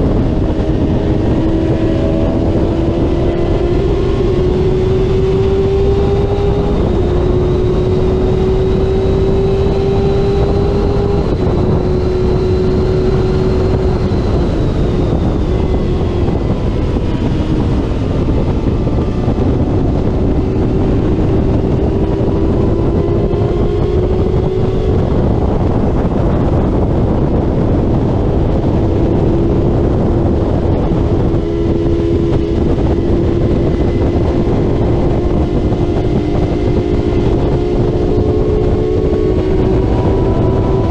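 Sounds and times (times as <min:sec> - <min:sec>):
racing motorcycle engine revving: 0:00.0 - 0:40.9
wind rush: 0:00.0 - 0:40.9.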